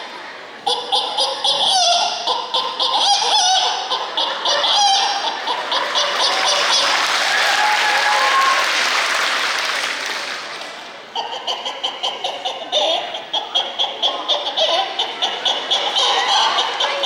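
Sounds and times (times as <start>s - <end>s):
audience applause: 4.2s - 11.1s, 15.8s - 17.0s.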